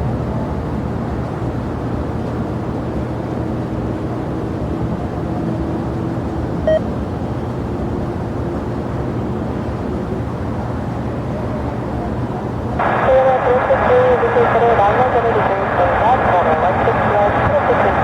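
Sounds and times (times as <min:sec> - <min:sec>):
jet engines rumbling: 0:00.0 - 0:18.0
short beep: 0:06.7 - 0:06.9.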